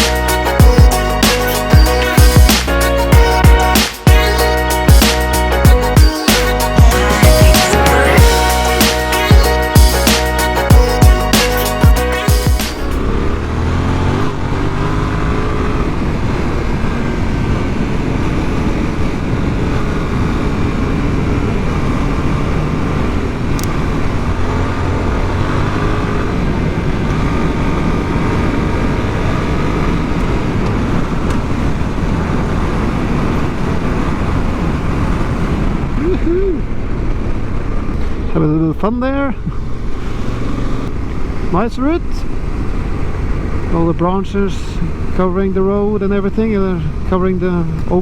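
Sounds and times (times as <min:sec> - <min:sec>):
motorcycle engine revving: 0:12.5 - 0:35.9.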